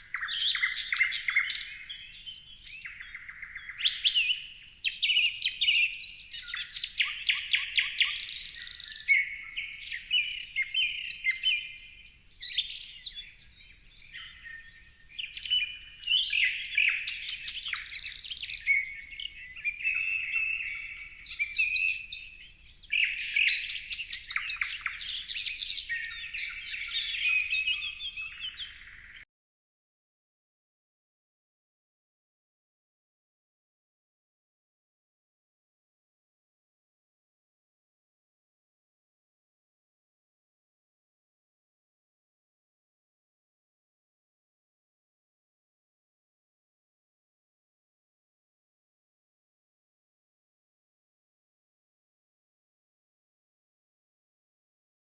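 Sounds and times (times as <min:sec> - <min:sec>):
songbirds chirping and singing: 0:00.0 - 0:29.3.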